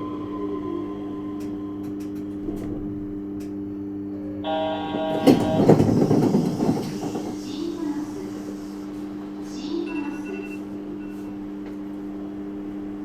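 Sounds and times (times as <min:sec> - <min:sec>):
train electrical hum: 0:00.0 - 0:13.0
train doors sliding open: 0:01.4 - 0:03.5, 0:04.5 - 0:10.3
door chime: 0:04.5 - 0:06.2.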